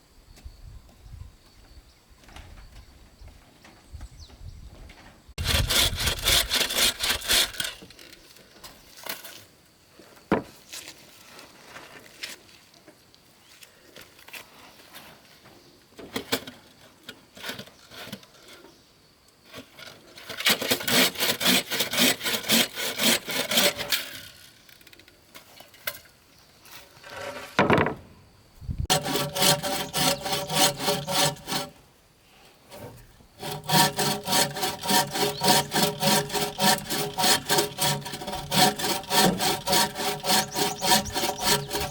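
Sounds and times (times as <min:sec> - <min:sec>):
hand saw cutting wood: 0:05.4 - 0:08.0, 0:20.2 - 0:24.4, 0:28.9 - 0:31.8, 0:32.7 - 0:41.9.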